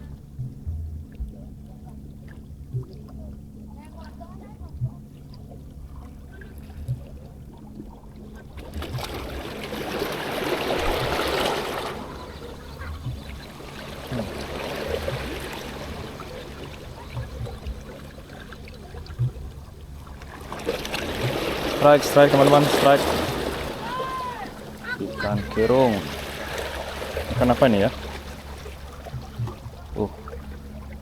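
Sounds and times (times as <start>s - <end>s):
short low thumps: 0.0s - 1.6s, 8.6s - 31.0s
sea water washing on shore: 3.8s - 31.0s.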